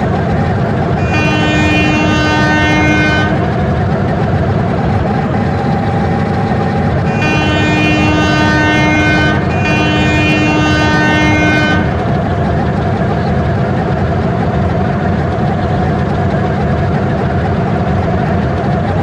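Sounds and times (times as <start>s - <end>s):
rumble of moving train: 0.0s - 19.0s
train horn blasts: 0.7s - 5.3s, 6.9s - 12.3s.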